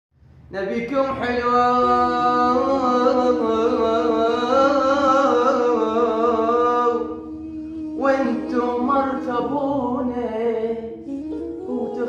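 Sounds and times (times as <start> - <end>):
man singing with vibrato: 0.5 - 12.0
held drone tone: 1.6 - 12.0.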